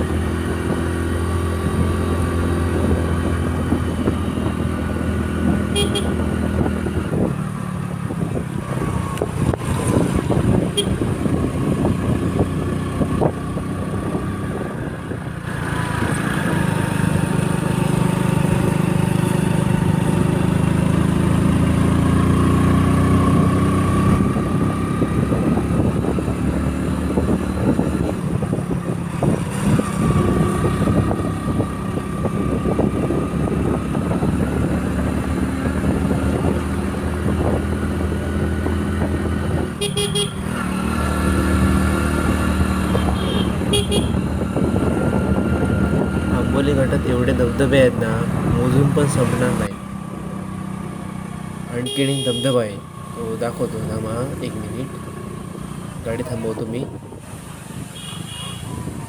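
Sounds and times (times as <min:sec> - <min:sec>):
motorcycle engine running: 0:00.0 - 0:57.2.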